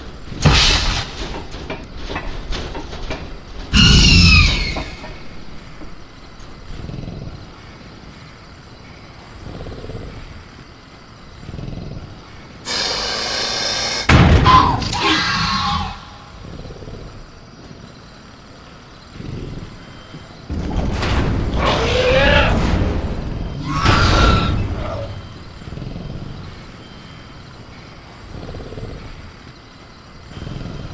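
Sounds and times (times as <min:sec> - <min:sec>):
creature screeching: 0:03.7 - 0:05.1, 0:12.7 - 0:16.4, 0:21.6 - 0:22.6, 0:23.6 - 0:25.3
creature growling and snorting: 0:06.5 - 0:30.9.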